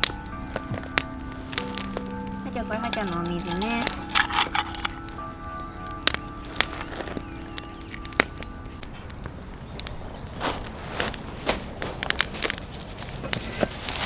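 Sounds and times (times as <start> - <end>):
crunching rustles: 0.0 - 14.0
clicks and knocks of handling: 2.8 - 5.0.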